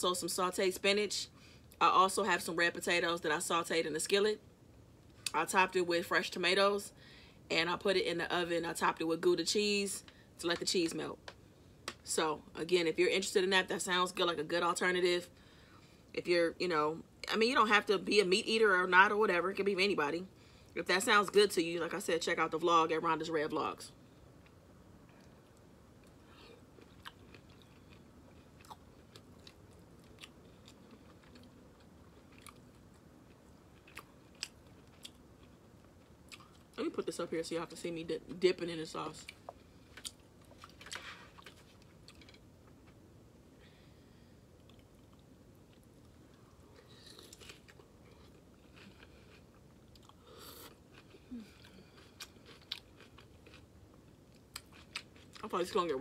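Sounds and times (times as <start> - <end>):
close-miked chewing: 24.4 - 36.8, 39.2 - 43.0, 44.6 - 55.8.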